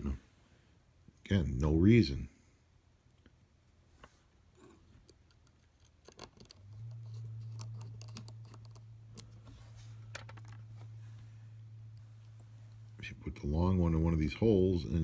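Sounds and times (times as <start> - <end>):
steady low hum: 6.5 - 15.0.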